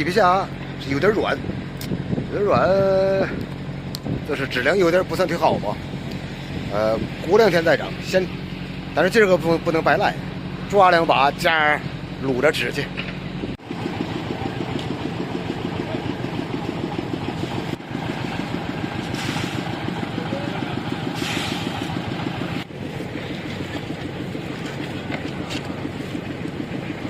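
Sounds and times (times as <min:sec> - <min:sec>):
engine running steadily: 0:00.0 - 0:27.0
brief hissing: 0:19.0 - 0:19.7, 0:21.1 - 0:22.0.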